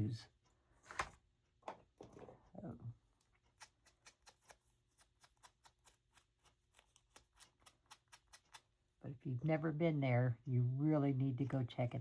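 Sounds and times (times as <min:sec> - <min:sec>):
person speaking: 0:00.0 - 0:00.3.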